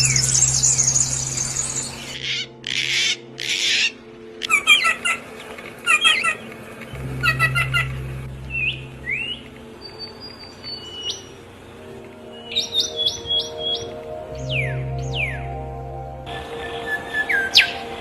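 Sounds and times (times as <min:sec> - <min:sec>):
bird squawks: 0:00.0 - 0:05.3.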